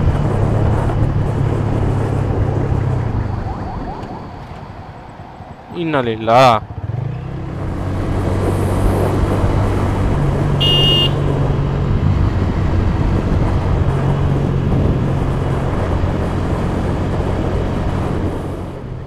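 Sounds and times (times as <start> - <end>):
road and wind noise: 0.0 - 19.0
short high horn beep: 10.6 - 11.2.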